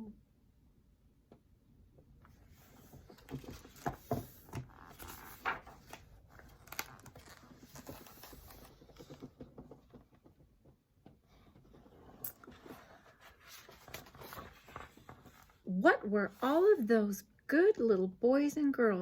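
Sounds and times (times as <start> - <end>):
paper rustling: 2.3 - 10.0, 11.3 - 15.6
book pages turning: 2.3 - 10.4, 11.4 - 15.7.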